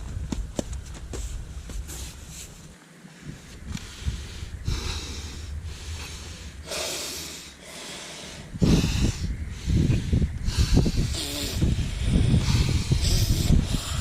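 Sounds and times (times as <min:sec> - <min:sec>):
wind buffeting microphone: 0:00.0 - 0:02.4, 0:03.2 - 0:14.0
person breathing hard: 0:03.2 - 0:14.0.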